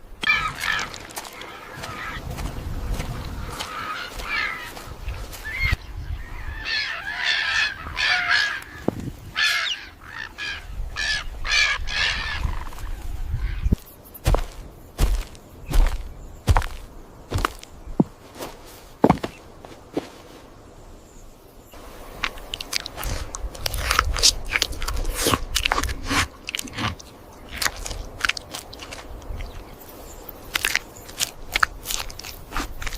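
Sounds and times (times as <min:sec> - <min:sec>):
irregular crunching and cracking: 0:22.2 - 0:29.7, 0:30.3 - 0:32.9.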